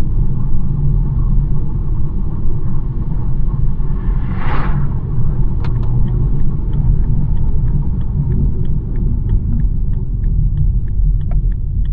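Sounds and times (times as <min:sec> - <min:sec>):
car road and engine rumble: 0:00.0 - 0:11.9
brief whoosh: 0:03.5 - 0:06.1
light regular ticking: 0:05.1 - 0:11.9.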